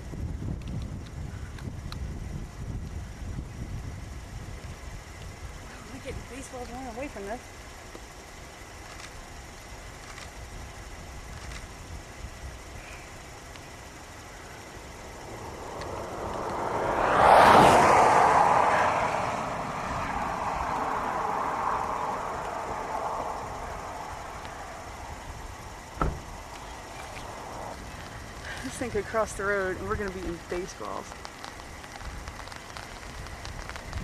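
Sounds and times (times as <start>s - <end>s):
vehicle passing by: 14.4s - 30.6s.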